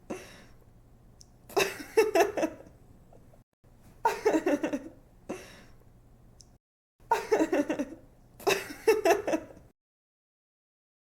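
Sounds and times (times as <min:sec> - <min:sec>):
young woman giggling: 0:04.0 - 0:05.0, 0:07.1 - 0:09.7.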